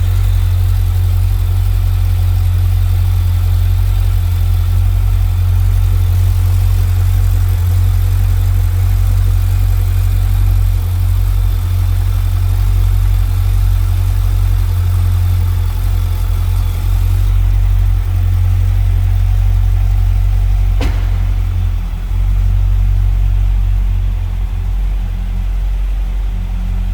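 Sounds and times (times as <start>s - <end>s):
car engine idling: 0.0s - 26.9s
sharp click: 20.6s - 21.6s.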